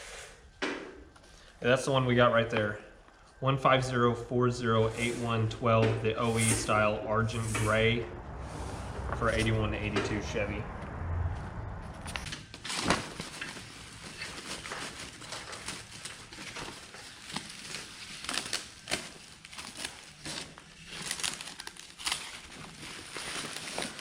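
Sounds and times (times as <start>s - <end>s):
packaging crinkling and rustling: 12.3s - 24.0s
packaging tearing: 12.6s - 24.0s.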